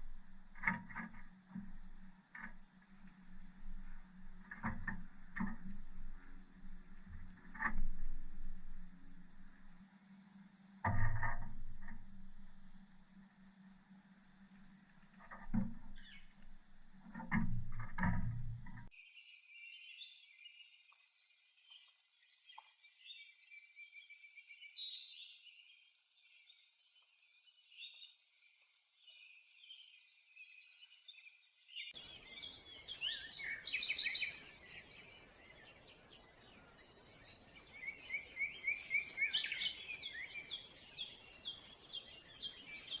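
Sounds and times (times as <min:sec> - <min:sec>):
wild birds calling and singing: 0:10.9 - 0:18.1, 0:18.8 - 0:43.0.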